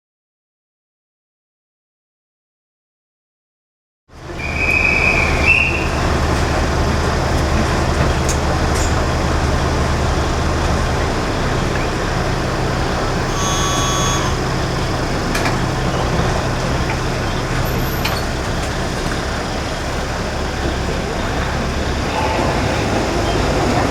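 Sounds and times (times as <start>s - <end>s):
diesel railcar engine humming: 4.1s - 23.9s
short high beep: 13.2s - 14.8s.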